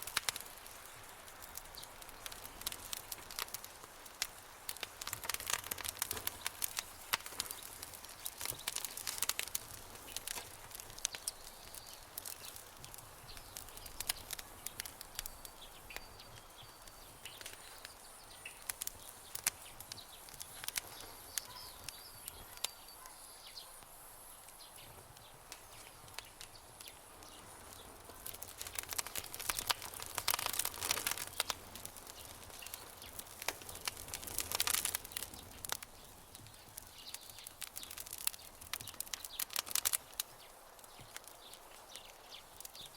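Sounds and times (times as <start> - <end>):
campfire crackling: 0.0 - 42.9
faint high chirping: 13.4 - 23.8.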